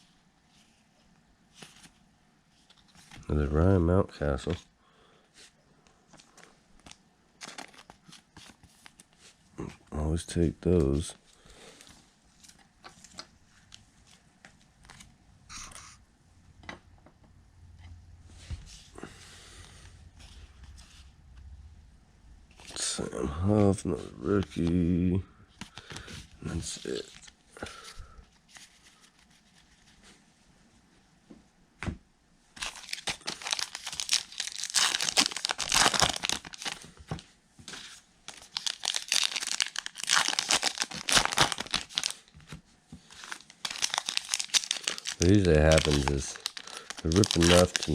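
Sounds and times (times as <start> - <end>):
cards rustling: 6.1 - 9.4, 22.5 - 25.0, 25.6 - 30.2, 32.6 - 47.9
wrapper tearing and crinkling: 6.8 - 8.6, 32.6 - 36.9, 38.3 - 42.5, 43.1 - 47.9.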